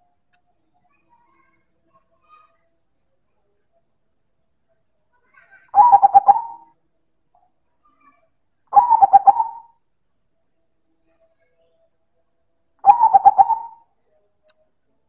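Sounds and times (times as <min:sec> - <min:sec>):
dove cooing: 0:05.8 - 0:06.7, 0:08.8 - 0:09.7, 0:12.8 - 0:13.8.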